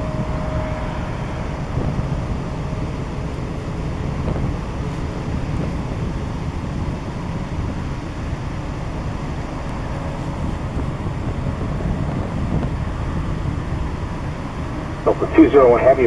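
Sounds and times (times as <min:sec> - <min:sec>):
wind buffeting microphone: 0:00.0 - 0:15.7
jet aircraft rumble: 0:00.0 - 0:16.0.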